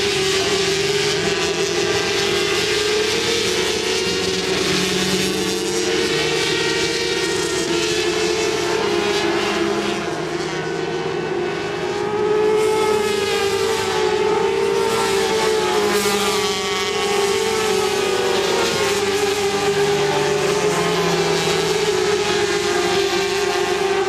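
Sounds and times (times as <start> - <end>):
racing motorcycles revving: 0.0 - 24.0.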